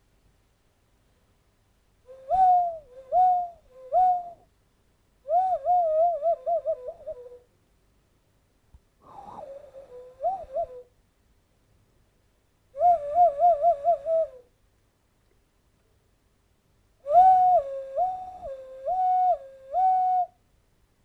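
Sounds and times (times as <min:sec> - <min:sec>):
cupped-hand whistle hoots: 0:02.1 - 0:04.4, 0:05.3 - 0:07.4, 0:09.1 - 0:10.9, 0:17.0 - 0:20.4.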